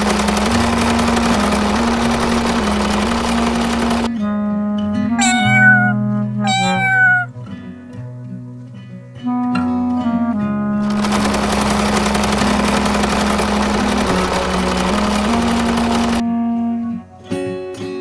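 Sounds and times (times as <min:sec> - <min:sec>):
cat meowing: 0:05.2 - 0:07.3.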